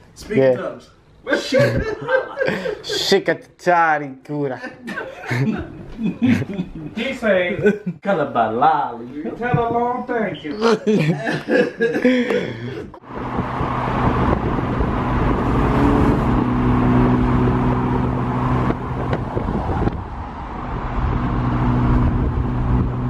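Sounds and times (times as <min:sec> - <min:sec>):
road noise: 0:09.2 - 0:23.0
car engine droning: 0:13.0 - 0:23.0.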